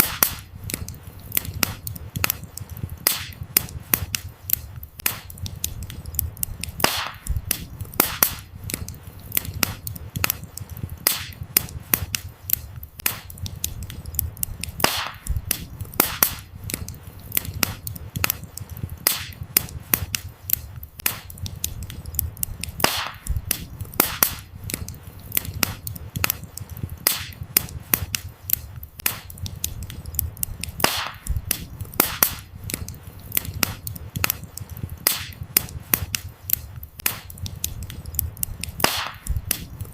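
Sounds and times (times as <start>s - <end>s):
firewood crackling and popping: 0.0s - 39.9s
loud firewood snap: 0.0s - 39.9s
low rumble of flames: 0.0s - 39.9s.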